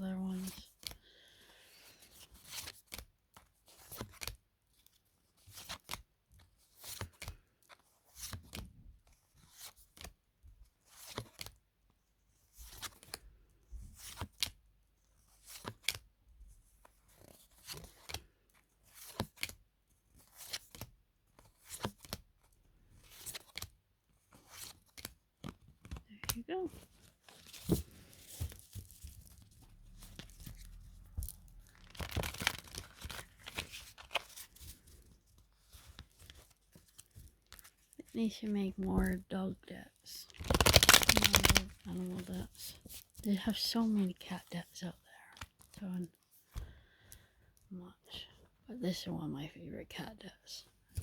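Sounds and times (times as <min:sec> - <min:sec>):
cards swishing and slapping: 0:40.4 - 0:41.7.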